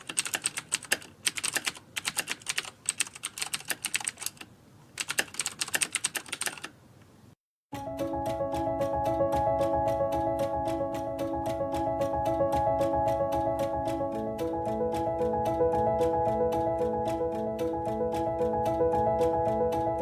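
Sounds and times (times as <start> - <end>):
rapid sharp clicks: 0.0 - 6.7, 7.8 - 20.0
music with plucked notes: 7.8 - 20.0.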